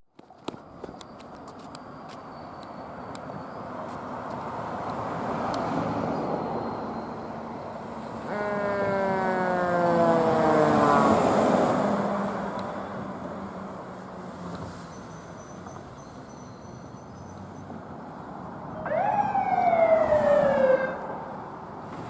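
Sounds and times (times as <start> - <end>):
fire engine driving past: 1.8 - 22.0
air horn: 8.3 - 8.9.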